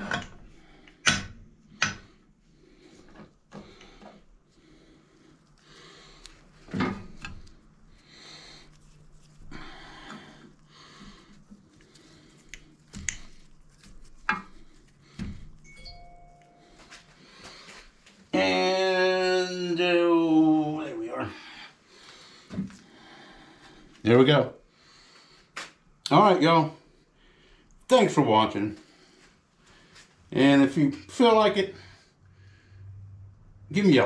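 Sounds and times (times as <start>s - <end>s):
soft rustling: 2.6s - 18.3s.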